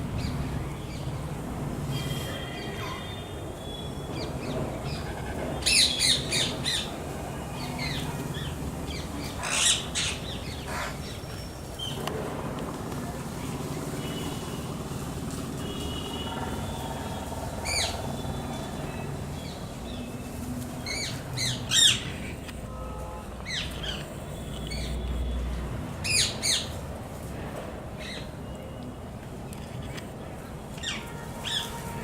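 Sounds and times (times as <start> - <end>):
birds calling: 7.6 - 12.0, 17.6 - 25.3.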